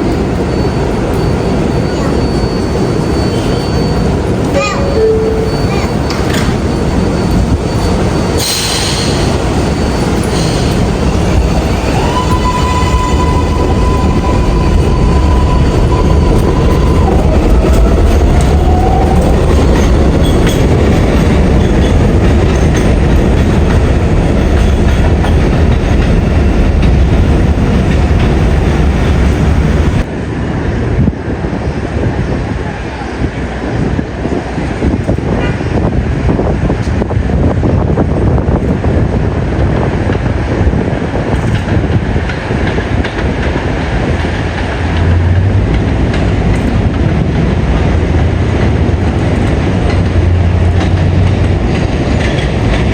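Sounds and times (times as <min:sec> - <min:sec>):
high wheel squeal: 0:00.0 - 0:30.0
subway train wheels rumbling: 0:00.0 - 0:52.9
rising whine: 0:11.0 - 0:21.0.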